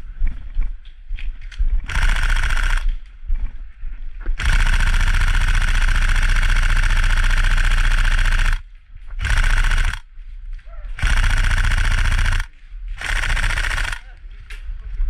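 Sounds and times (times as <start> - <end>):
airsoft rifle full auto firing: 1.9 - 3.0, 4.4 - 8.6, 9.2 - 10.1, 11.0 - 14.2.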